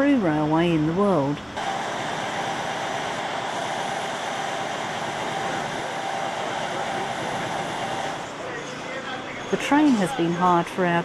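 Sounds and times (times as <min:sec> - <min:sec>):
train running: 0:00.0 - 0:11.0.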